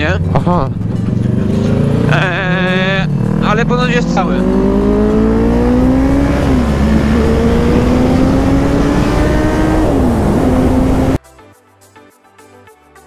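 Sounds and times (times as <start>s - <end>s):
motorcycle engine accelerating: 0.0s - 11.2s
wind noise: 5.5s - 11.2s.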